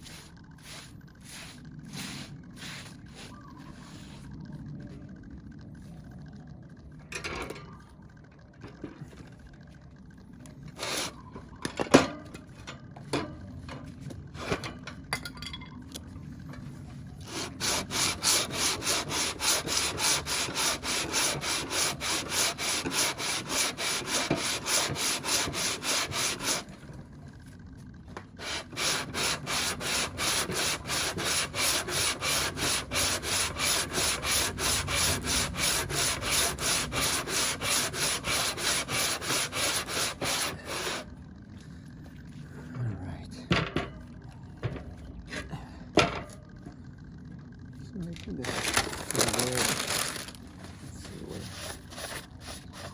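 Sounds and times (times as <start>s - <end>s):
metal scraping on sandpaper: 0.0s - 4.3s, 17.3s - 26.7s, 28.4s - 41.0s, 51.2s - 52.9s.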